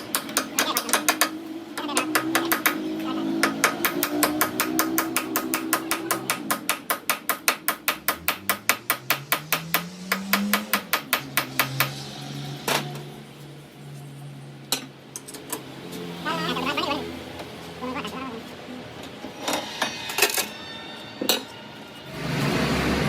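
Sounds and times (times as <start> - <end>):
sharp knocks: 0.0 - 2.8, 3.4 - 12.1
rapid hammer blows: 2.0 - 12.1.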